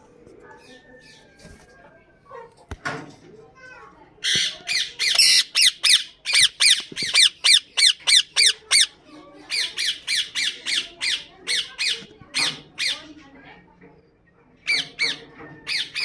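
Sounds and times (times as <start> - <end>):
parakeet squawking: 4.2 - 9.0, 9.6 - 12.0.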